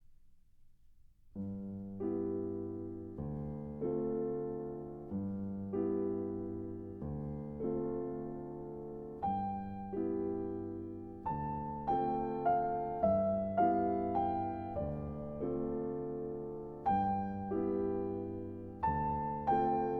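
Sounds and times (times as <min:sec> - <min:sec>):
slow gentle piano music: 0:01.2 - 0:19.9.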